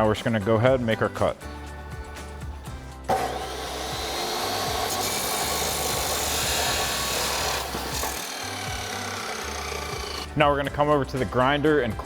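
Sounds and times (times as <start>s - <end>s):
power saw cutting metal pipe: 3.1s - 10.3s.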